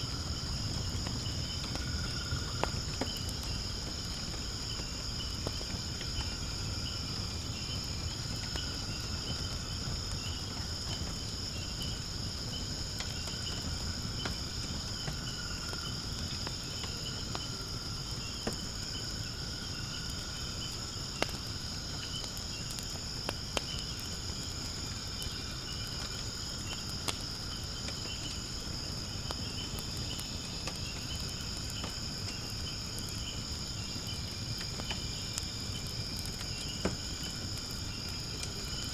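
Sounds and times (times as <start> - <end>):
insects chirring: 0.0 - 38.9
wood fire burning: 0.0 - 38.9
crackling pops from wood: 0.4 - 6.4, 18.4 - 18.8, 20.1 - 38.9.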